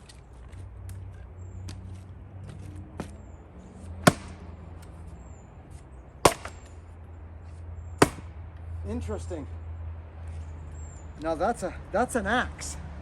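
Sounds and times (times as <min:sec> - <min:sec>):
axe chopping wood: 0:04.0 - 0:05.0, 0:06.2 - 0:06.8, 0:08.0 - 0:08.4.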